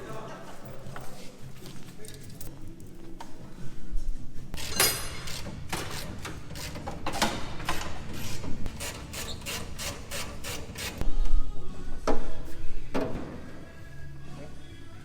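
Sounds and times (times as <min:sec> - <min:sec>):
hand tool scraping: 0:04.6 - 0:11.0.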